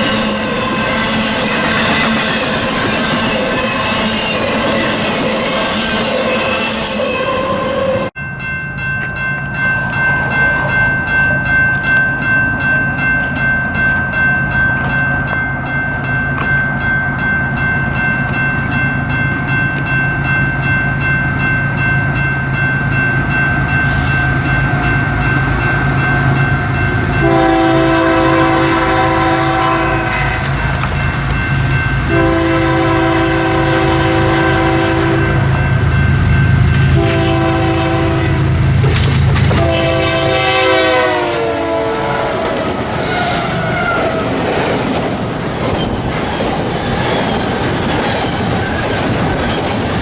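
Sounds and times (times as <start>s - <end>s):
wheel squeal: 0.0s - 8.1s
diesel locomotives rumbling: 0.0s - 50.0s
train air horn: 27.2s - 30.8s, 32.1s - 35.5s, 36.9s - 44.2s.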